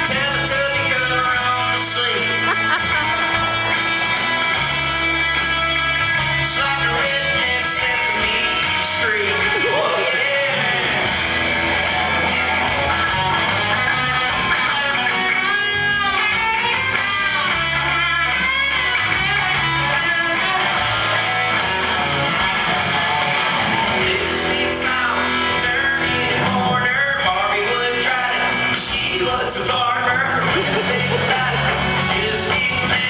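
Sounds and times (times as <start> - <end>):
person singing: 0.0 - 3.3, 6.3 - 11.3, 24.0 - 33.0
guitar strumming: 0.0 - 33.0.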